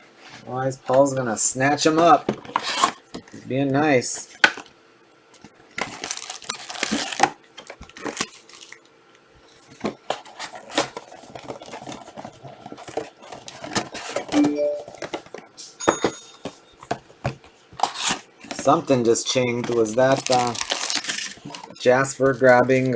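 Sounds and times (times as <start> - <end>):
plastic wrapping crinkling and tearing: 5.7 - 8.9, 19.6 - 22.9.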